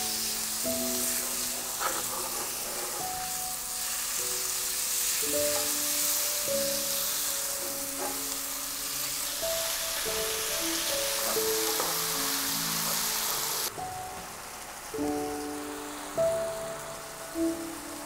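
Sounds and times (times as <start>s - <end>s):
chicken sizzling in frying pan: 0.0s - 18.0s
soft background music: 0.0s - 18.0s
spatula scraping: 1.0s - 4.2s.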